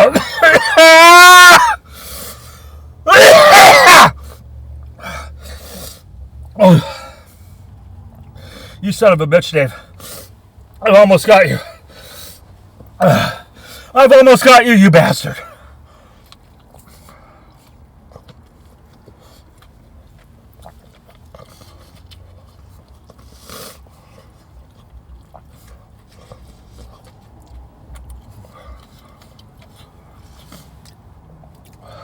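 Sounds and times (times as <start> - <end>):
man chewing fried chicken: 15.6 - 32.0.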